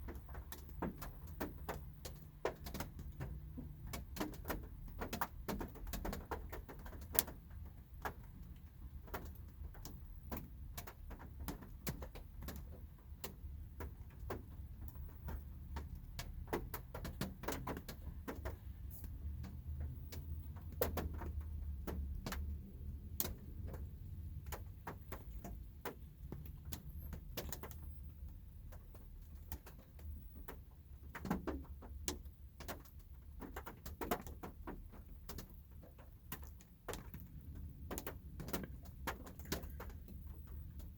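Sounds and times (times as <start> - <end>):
raindrops tapping on a car: 0.0 - 40.9.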